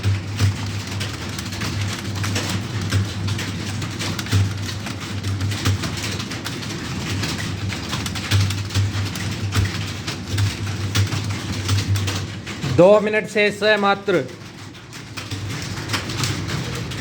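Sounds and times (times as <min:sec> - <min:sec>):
keyboards clattering: 0:00.0 - 0:17.0.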